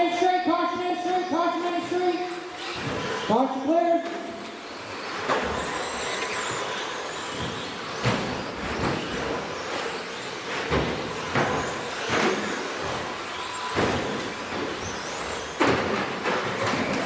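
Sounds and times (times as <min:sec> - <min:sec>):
electric motors whining: 0:00.0 - 0:17.0.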